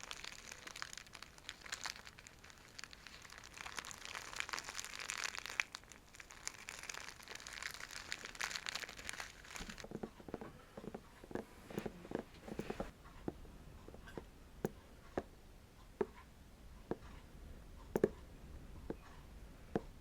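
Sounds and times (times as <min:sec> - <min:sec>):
fingernails scratching silk bag: 0:11.5 - 0:12.9.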